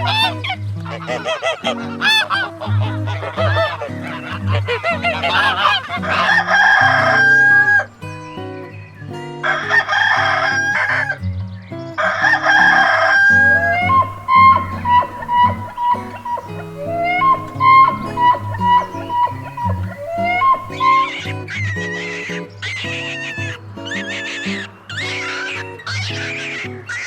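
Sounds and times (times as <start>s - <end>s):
chickens clucking: 13.4s - 21.1s
rooster crowing: 13.4s - 21.1s.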